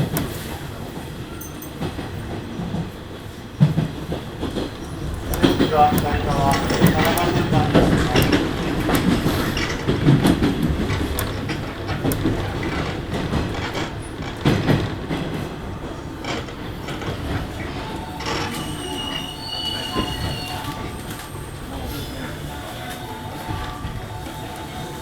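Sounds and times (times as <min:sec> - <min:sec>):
wheels clacking over rail joints: 0:00.0 - 0:21.7
electric train slowing: 0:00.0 - 0:25.0
high squeal of wheels and brakes: 0:16.2 - 0:25.0.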